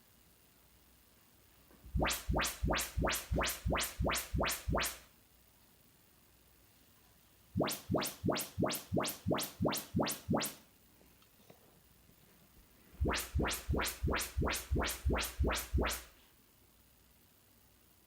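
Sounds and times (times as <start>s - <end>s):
rising sweep tones: 1.9s - 5.0s, 7.6s - 10.6s, 13.0s - 16.0s.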